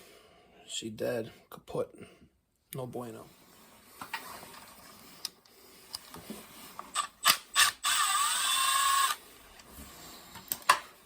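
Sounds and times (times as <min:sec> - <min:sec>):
cordless driver running: 0:07.0 - 0:09.2.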